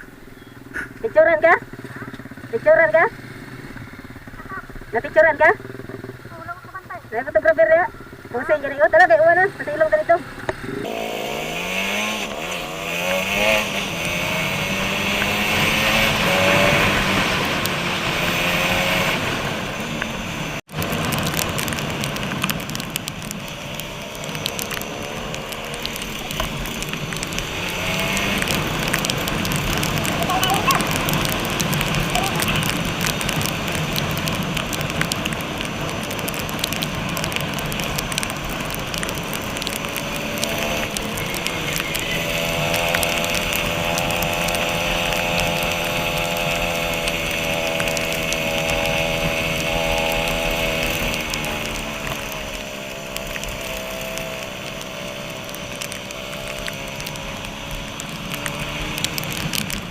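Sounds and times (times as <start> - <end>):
motorcycle engine running: 0.0 - 59.9
rain patter with drop hits: 0.7 - 59.9
sharp ticks: 13.0 - 16.2, 20.0 - 59.9.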